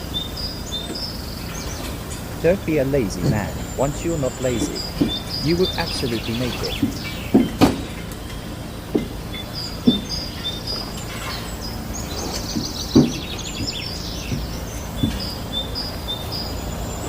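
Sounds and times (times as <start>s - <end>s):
birds chirping: 0.0s - 17.0s
low background rumble: 0.0s - 17.0s
dull thumps: 2.5s - 8.1s, 8.9s - 11.1s, 12.0s - 16.0s.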